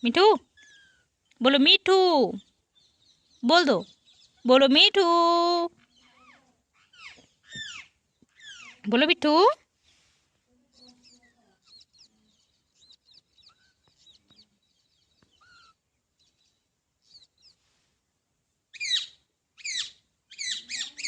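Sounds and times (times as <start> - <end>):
parakeet chirping and chattering: 0.4 - 1.7, 2.4 - 5.0, 5.8 - 9.1, 10.7 - 17.6, 18.7 - 21.0
parakeet screeching calls: 0.6 - 1.1, 6.0 - 8.8, 12.8 - 14.2, 15.3 - 15.8, 18.8 - 21.0.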